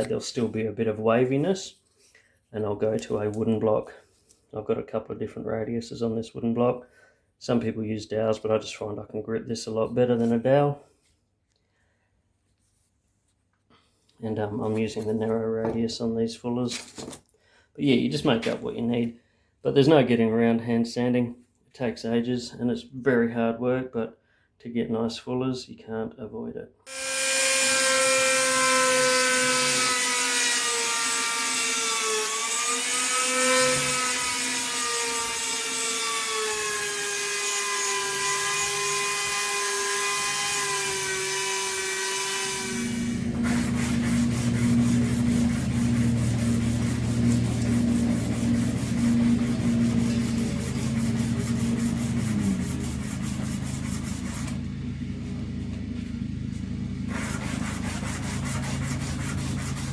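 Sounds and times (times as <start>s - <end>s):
power sander whining: 26.9s - 59.9s
low motor whine with rubbing: 42.4s - 59.9s.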